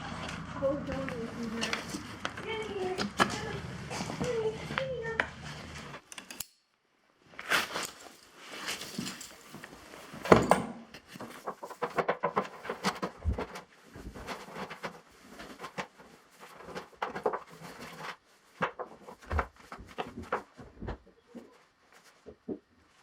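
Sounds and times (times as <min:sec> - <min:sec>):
objects being handled: 0:07.3 - 0:23.0.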